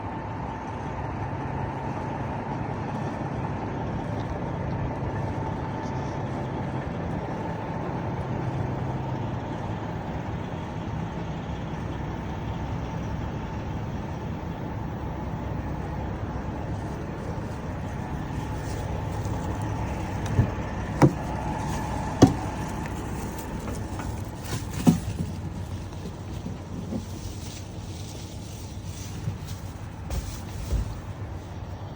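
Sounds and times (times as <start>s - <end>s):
truck engine running: 0.0s - 31.9s
sharp knocks: 20.2s - 22.7s.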